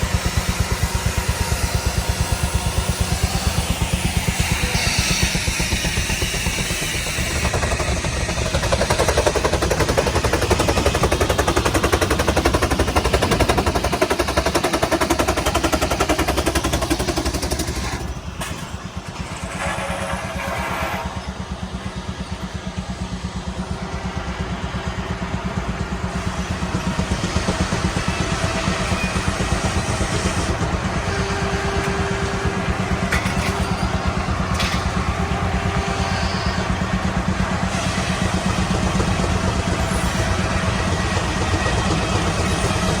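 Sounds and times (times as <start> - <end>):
engine running: 0.0 - 43.0.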